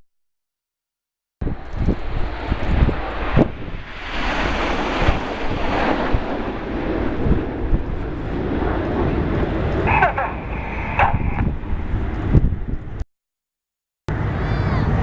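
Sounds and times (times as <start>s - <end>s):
jets roaring past: 1.4s - 13.0s, 14.1s - 15.0s
wind buffeting microphone: 1.4s - 13.0s.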